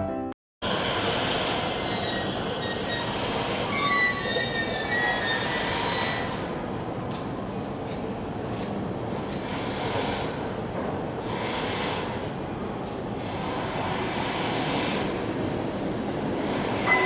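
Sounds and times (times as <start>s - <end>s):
train rumbling past: 0.6s - 17.0s
high wheel squeals: 1.4s - 6.7s.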